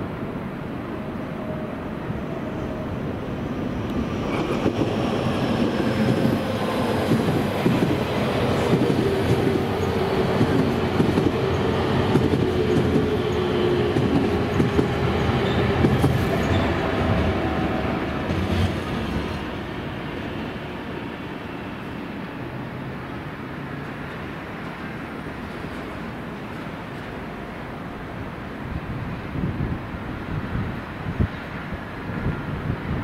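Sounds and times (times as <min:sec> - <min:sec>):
train wheels rumbling on rails: 0:02.1 - 0:22.1.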